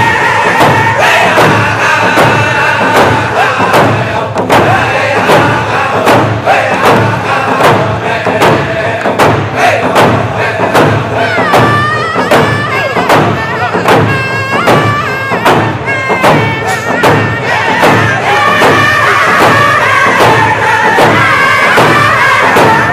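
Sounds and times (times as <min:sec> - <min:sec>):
drum steady beat: 0:00.0 - 0:22.9
group of voices singing: 0:00.0 - 0:22.9
high wavering voice: 0:11.2 - 0:18.2.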